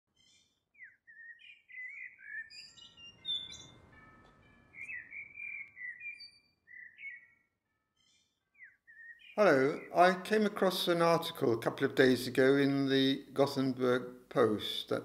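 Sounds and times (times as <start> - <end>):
birds singing: 0.2 - 11.6.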